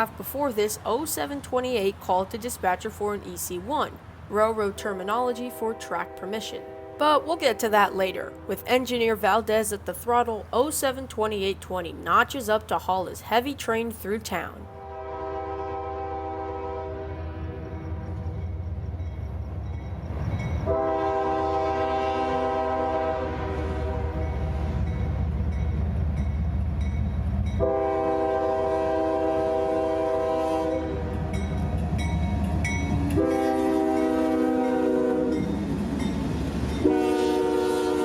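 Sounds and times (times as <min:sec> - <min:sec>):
diesel locomotive engines rumbling: 0:00.0 - 0:38.0
train horn blasts: 0:05.2 - 0:08.6, 0:14.7 - 0:18.4, 0:20.6 - 0:24.7, 0:27.6 - 0:32.0, 0:32.9 - 0:35.7, 0:36.8 - 0:38.0.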